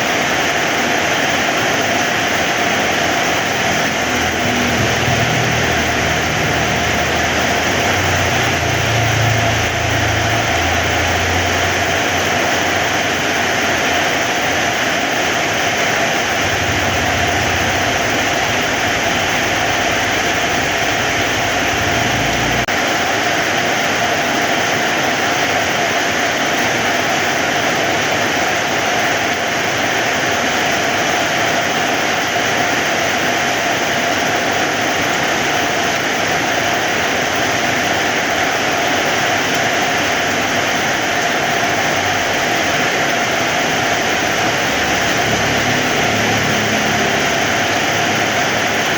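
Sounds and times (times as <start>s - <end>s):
heavy rain falling: 0.0s - 48.9s
low rumble: 3.7s - 12.3s, 16.2s - 22.7s.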